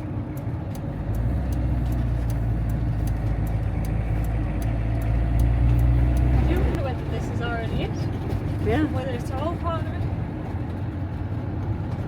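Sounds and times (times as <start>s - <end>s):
faint regular ticking: 0.0s - 7.8s
engine and road rumble: 0.0s - 12.0s.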